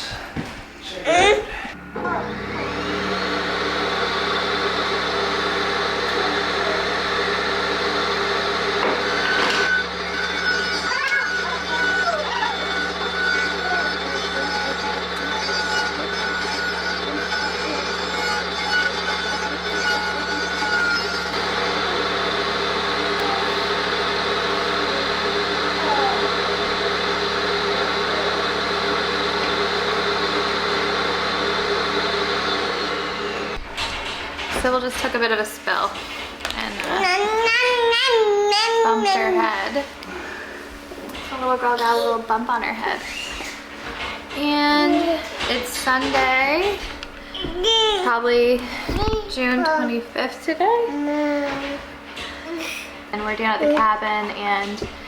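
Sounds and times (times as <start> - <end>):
motor humming: 0.8 - 55.0
table saw whining: 1.5 - 35.3.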